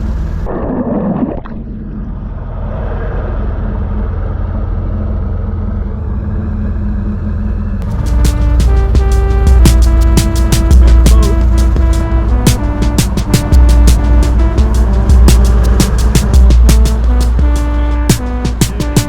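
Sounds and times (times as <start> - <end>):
airboat engine and propeller: 2.0 - 19.0
music with a beat: 7.8 - 19.0.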